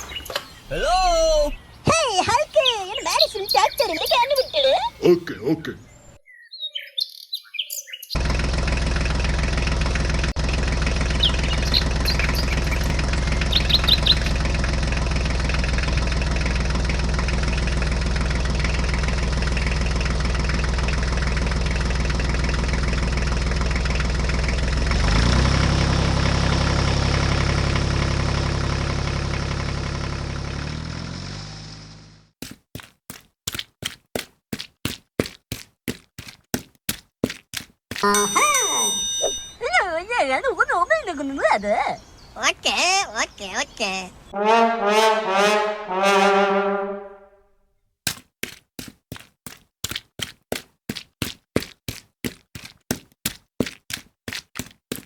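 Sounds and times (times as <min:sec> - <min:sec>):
bird chirps: 0:00.0 - 0:08.2, 0:11.1 - 0:14.5
tractor engine idling: 0:08.2 - 0:30.7.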